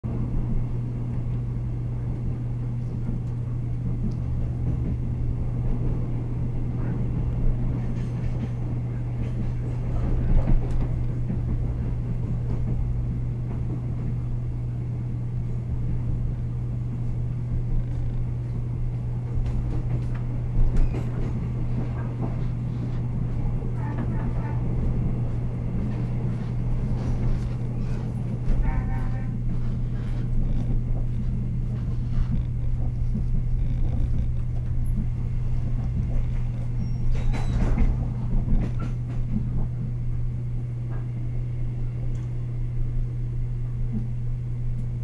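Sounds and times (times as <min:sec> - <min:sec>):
train running rumble: 0:00.1 - 0:45.0
loud train bumps: 0:03.8 - 0:14.4, 0:15.7 - 0:40.3
low hum: 0:08.4 - 0:45.0.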